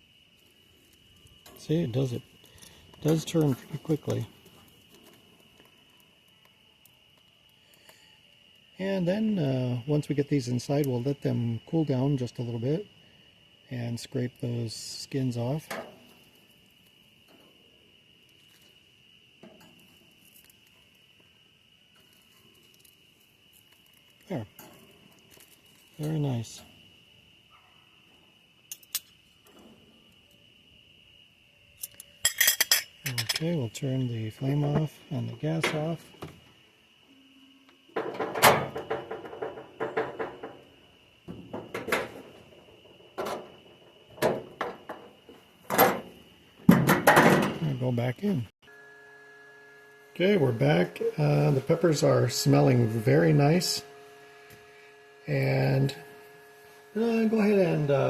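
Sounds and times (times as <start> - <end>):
light hiss: 0.0 - 30.6, 49.0 - 58.0
faint high-pitched whine: 0.0 - 58.0
objects knocking and clattering: 38.0 - 40.7, 41.3 - 46.1
faint high-pitched hum: 47.3 - 58.0.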